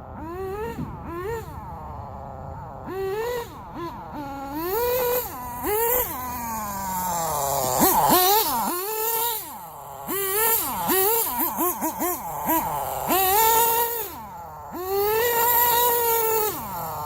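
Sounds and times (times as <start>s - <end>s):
model engine high-pitched whine: 0.0s - 17.0s.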